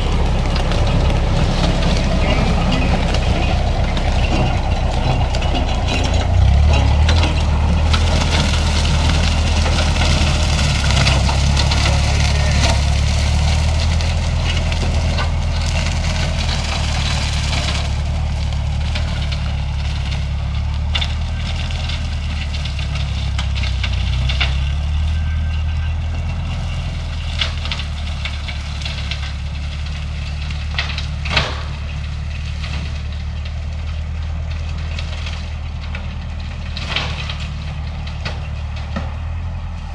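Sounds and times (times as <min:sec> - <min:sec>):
tractor engine running: 0:00.0 - 0:39.9
sharp cracks: 0:26.2 - 0:39.2.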